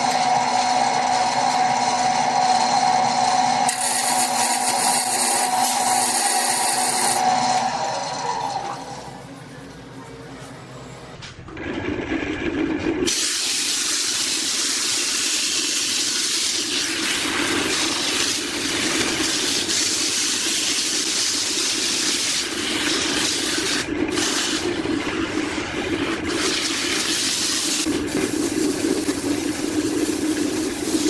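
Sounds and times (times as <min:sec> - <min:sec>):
water running from a tap: 0:13.1 - 0:24.7, 0:26.0 - 0:31.0.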